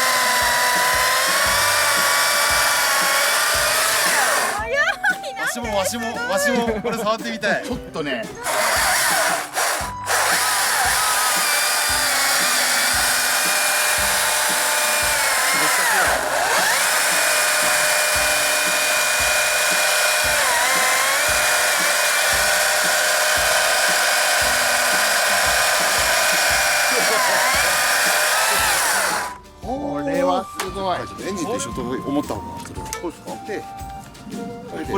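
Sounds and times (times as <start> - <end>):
electric chainsaw whining: 0.0 - 4.7, 8.4 - 29.4.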